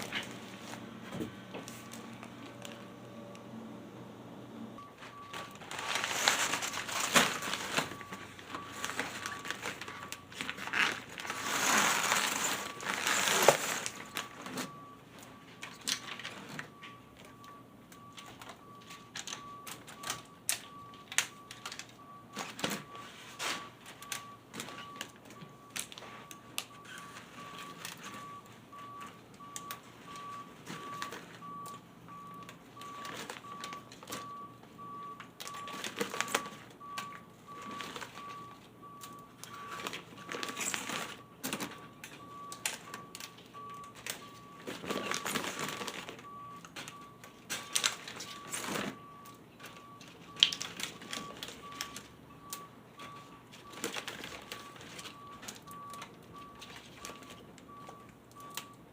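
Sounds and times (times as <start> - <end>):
crinkling handling noise: 0.0 - 3.0, 4.8 - 58.8.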